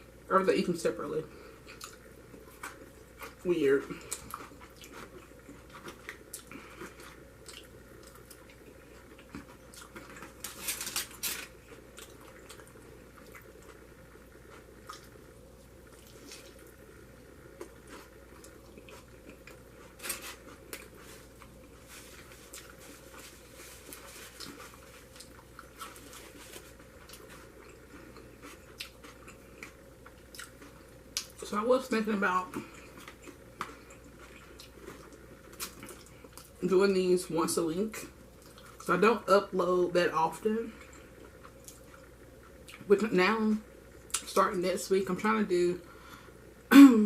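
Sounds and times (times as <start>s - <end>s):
person chewing: 1.6s - 31.4s, 32.5s - 36.6s, 40.8s - 42.9s.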